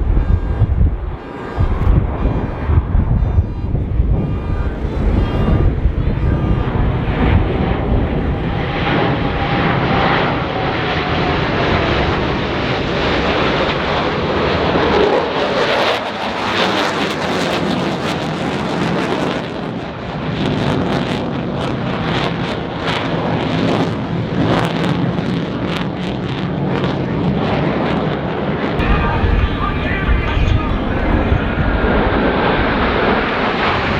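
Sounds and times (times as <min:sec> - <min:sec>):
wind buffeting microphone: 0:00.0 - 0:12.4, 0:28.8 - 0:33.9
aircraft flying past: 0:00.0 - 0:19.4, 0:28.8 - 0:33.9.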